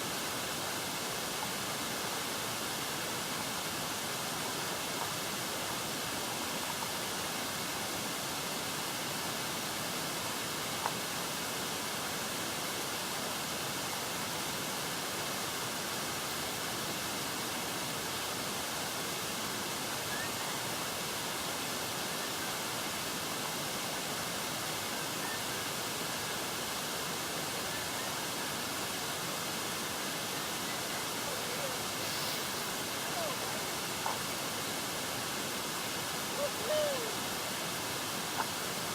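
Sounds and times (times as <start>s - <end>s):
wind: 0.0s - 38.9s
water rushing around kayak: 22.2s - 38.9s.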